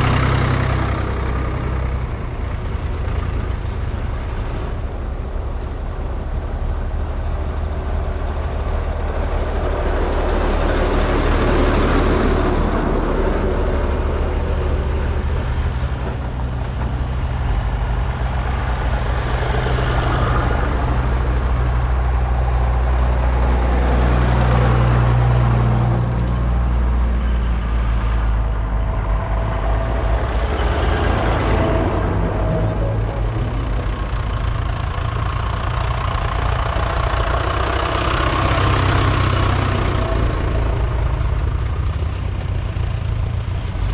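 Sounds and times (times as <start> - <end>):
tractor engines driving past: 0.0 - 43.9.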